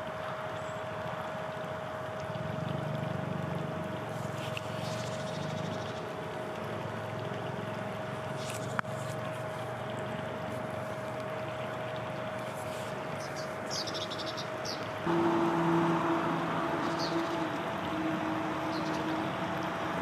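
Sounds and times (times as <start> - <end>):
constant thin tone: 0.0 - 20.0
river water over stones: 0.0 - 20.0.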